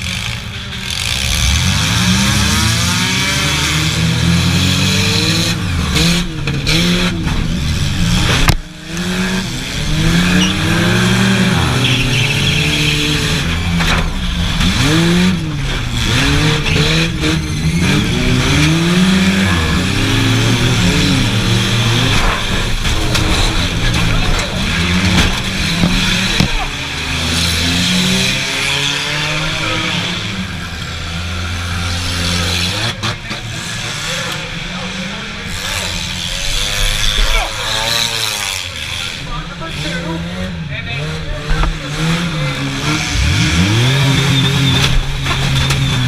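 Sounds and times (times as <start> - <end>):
race car engines revving: 0.0 - 46.0.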